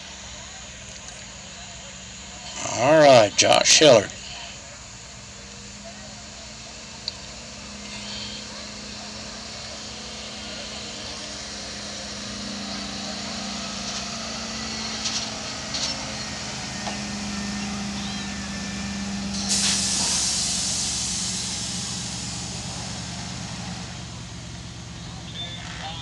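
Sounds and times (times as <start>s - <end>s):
engine running hard under load: 0.0s - 26.0s
loud hissing rush: 1.4s - 25.1s.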